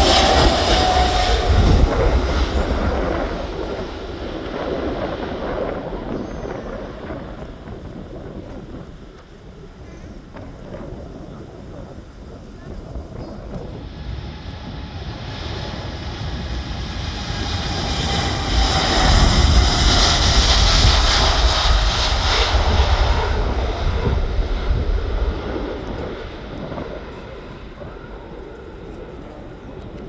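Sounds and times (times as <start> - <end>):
falling whining tone: 0.0 - 3.9
jet airliner taking off: 0.0 - 30.0.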